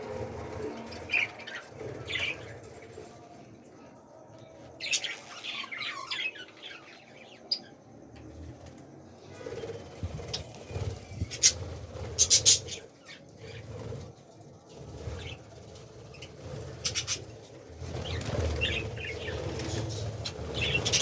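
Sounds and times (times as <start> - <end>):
budgerigars squawking and chirping: 11.2 - 11.6, 12.2 - 13.6.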